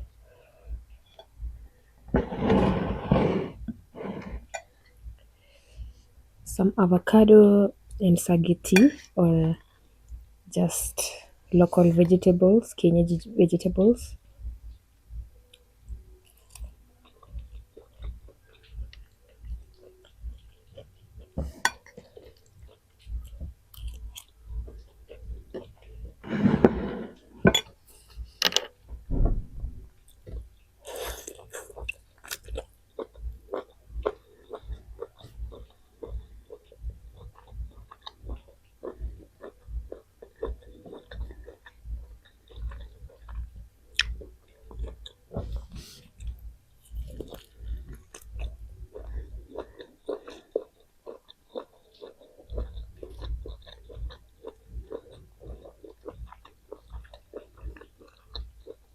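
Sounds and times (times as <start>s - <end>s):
chewing food: 15.5s - 27.3s, 30.0s - 58.9s
wet mouth clicks: 43.4s - 45.1s.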